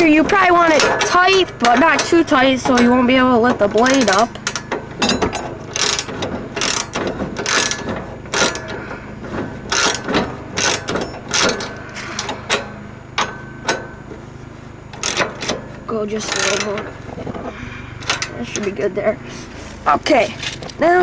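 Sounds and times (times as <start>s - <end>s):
socket ratchet clicking: 3.6s - 5.2s, 14.9s - 15.6s, 16.2s - 16.9s.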